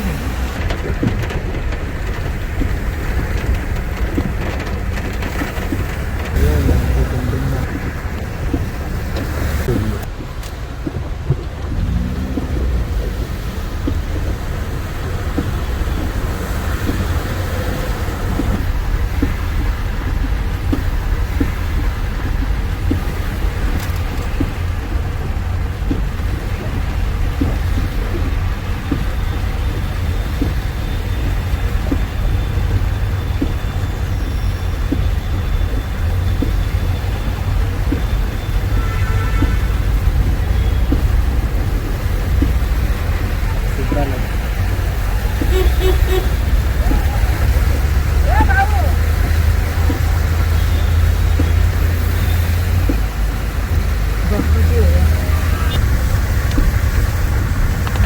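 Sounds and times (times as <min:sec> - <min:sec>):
road vehicles rumbling: 0:00.0 - 0:58.0.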